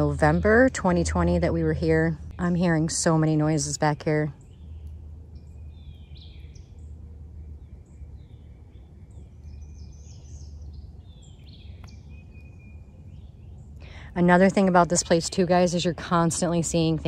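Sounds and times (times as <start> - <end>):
birds chirping and calling: 0.0 - 17.0
low outdoor rumble: 0.0 - 17.0.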